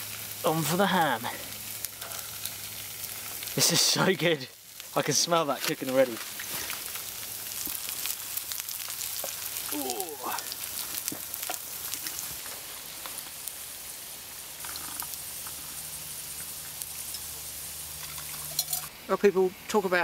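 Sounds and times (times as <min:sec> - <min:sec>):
food sizzling in frying pans: 0:00.0 - 0:20.0
hot water poured into a mug: 0:14.6 - 0:15.6.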